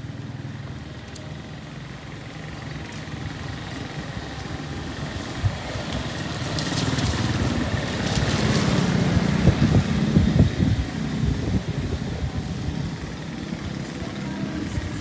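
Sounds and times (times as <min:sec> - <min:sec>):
floodwater rushing: 0:02.5 - 0:15.0
wind buffeting microphone: 0:03.3 - 0:15.0.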